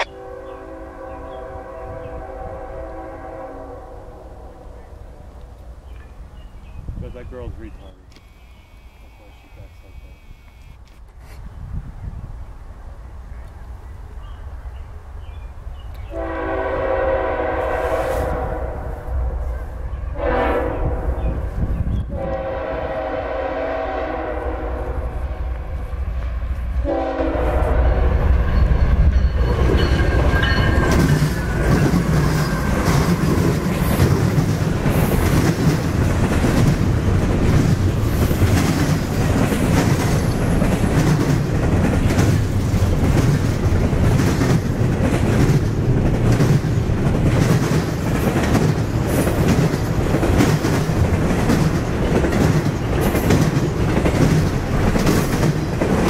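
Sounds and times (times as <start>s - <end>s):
train horn blast: 0.0s - 5.3s, 8.3s - 10.8s, 16.1s - 19.2s, 20.1s - 21.4s, 22.1s - 25.6s, 26.8s - 28.2s
locomotive rumble: 15.6s - 56.0s
wheels clacking over rail joints: 28.5s - 56.0s.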